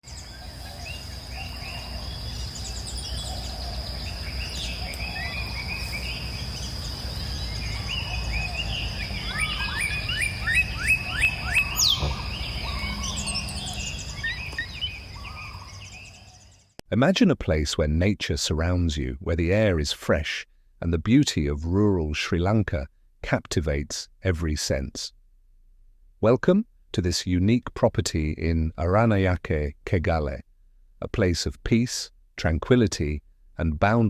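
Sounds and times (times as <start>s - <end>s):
birds chirping and calling: 0.0s - 16.8s.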